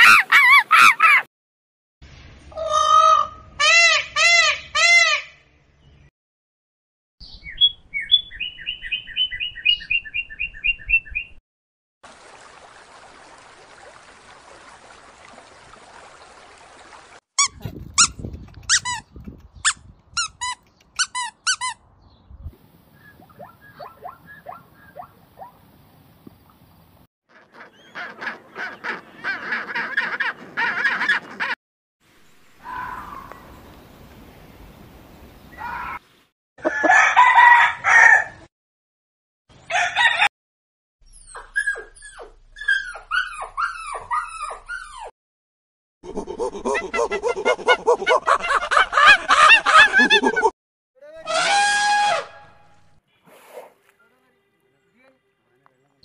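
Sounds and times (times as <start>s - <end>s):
songbirds chirping: 5.6s - 6.1s, 7.2s - 11.4s, 19.1s - 27.0s, 32.2s - 36.3s
puppy yapping: 41.3s - 45.1s.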